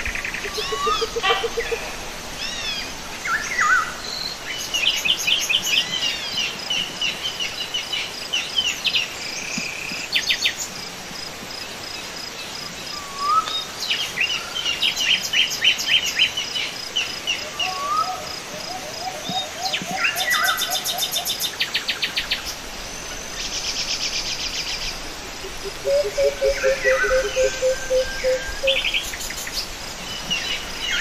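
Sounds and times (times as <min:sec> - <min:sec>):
insect chirping: 0:00.0 - 0:10.6, 0:11.2 - 0:31.0
songbirds chirping and singing: 0:00.1 - 0:02.8, 0:23.4 - 0:31.0.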